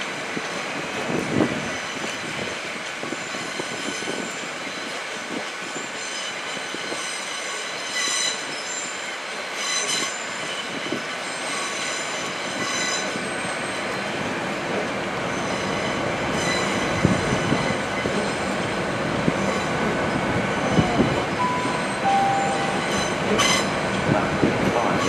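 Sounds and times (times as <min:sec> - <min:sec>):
train equipment whine: 0:15.3 - 0:25.0
short beeps: 0:21.4 - 0:23.7.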